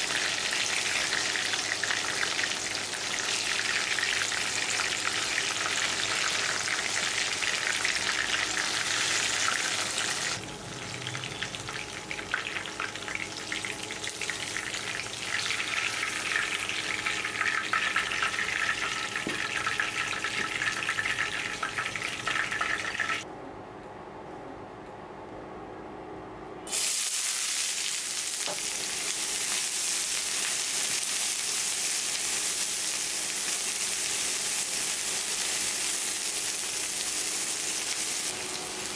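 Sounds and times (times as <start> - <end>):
food sizzling in hot oil: 0.0 - 23.2, 26.7 - 38.9.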